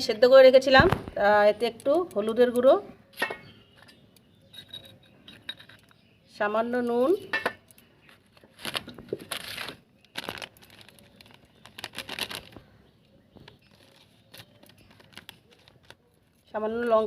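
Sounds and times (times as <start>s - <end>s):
rustling and crinkling: 7.7s - 17.0s.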